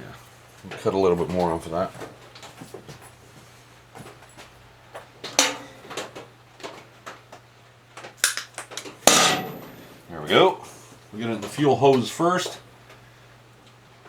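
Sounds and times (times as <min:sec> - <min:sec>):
faint hum: 0:08.9 - 0:14.0.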